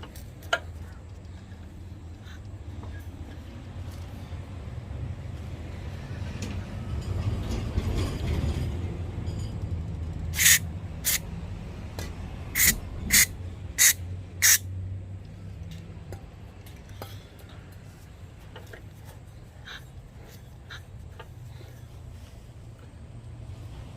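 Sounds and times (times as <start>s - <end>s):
short spraying hiss bursts: 10.4s - 11.2s, 12.6s - 14.6s.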